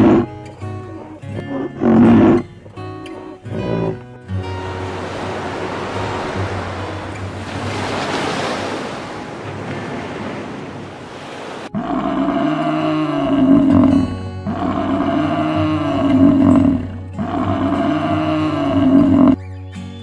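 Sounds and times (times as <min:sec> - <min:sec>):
buffalo bellowing: 0:00.0 - 0:08.2, 0:11.6 - 0:19.4
soft background music: 0:00.0 - 0:09.8, 0:11.8 - 0:20.0
surf washing on a beach: 0:04.4 - 0:11.7.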